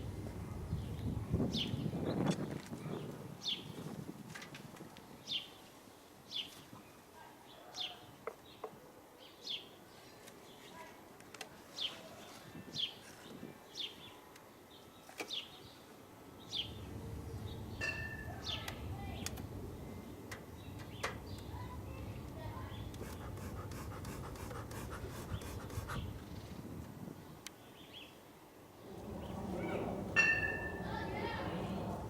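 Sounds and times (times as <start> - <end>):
songbird chirping: 28.8 - 32.0
steady low rumble: 28.8 - 32.0.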